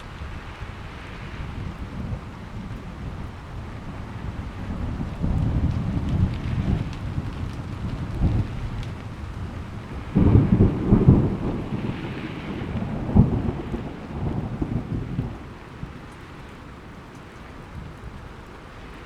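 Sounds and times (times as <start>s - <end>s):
steady rain: 0.0s - 19.0s
thunder rumbling: 0.0s - 19.0s
sharp thunder crack: 9.9s - 15.5s.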